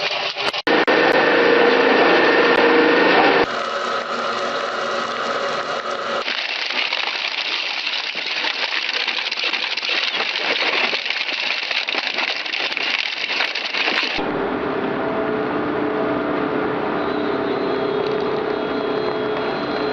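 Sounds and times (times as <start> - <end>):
machine humming: 0.3 - 6.3, 13.0 - 19.9
shredder crackling and clattering: 5.0 - 14.2.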